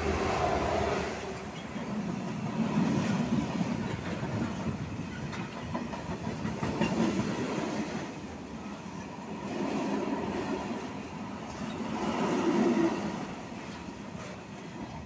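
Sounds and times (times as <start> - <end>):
train wheels rumbling on rails: 0.0 - 15.0
wheels clacking over rail joints: 1.4 - 8.2.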